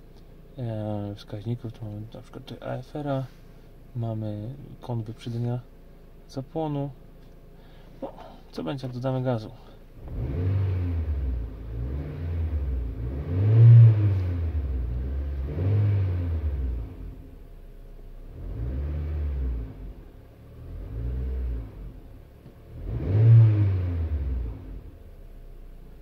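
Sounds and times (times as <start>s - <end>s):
car engine revving: 10.0s - 17.4s, 18.1s - 25.1s.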